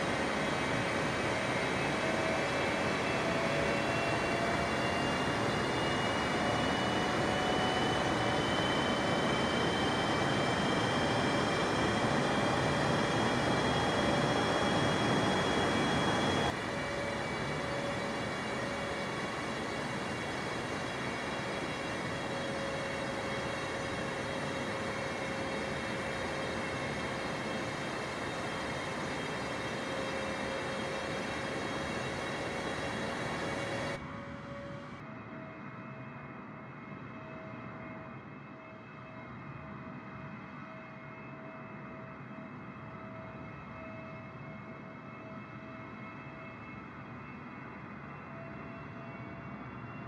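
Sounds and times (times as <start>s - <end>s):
jet engine roar: 0.0s - 35.0s
jet fan whine: 0.0s - 35.8s.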